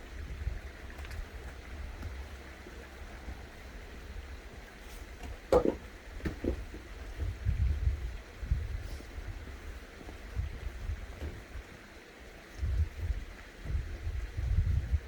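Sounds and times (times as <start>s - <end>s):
knocks: 5.5s - 6.6s.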